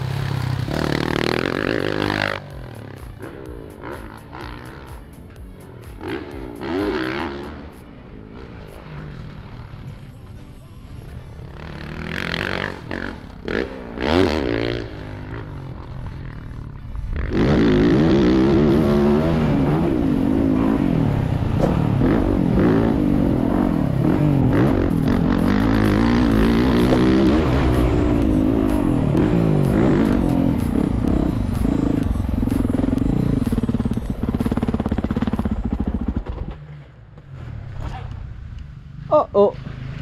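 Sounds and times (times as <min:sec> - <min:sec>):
motocross bike engine revving: 0:00.0 - 0:09.8, 0:11.4 - 0:36.8.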